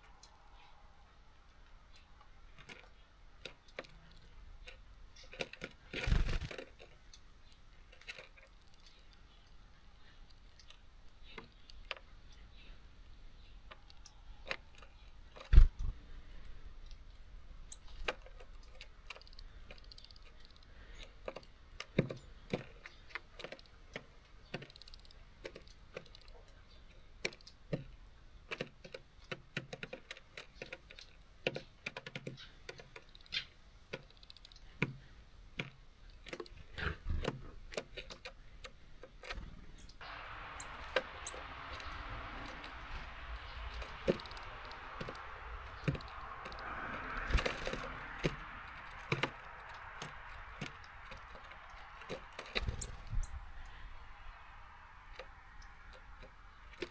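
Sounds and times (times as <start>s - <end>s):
birds pecking on seed feeder: 1.9s - 56.9s
steady hiss: 40.0s - 55.8s.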